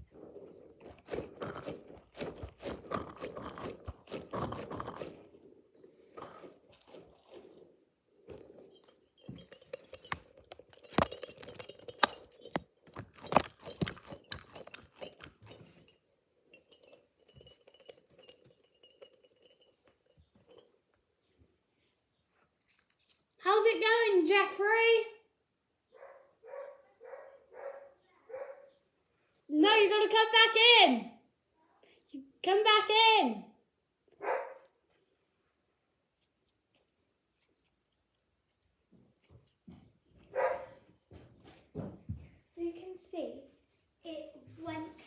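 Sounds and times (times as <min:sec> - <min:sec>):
toys crackly crunching: 0:00.0 - 0:07.8, 0:09.4 - 0:15.8
faint handling of toys: 0:19.2 - 0:23.4, 0:34.0 - 0:45.0.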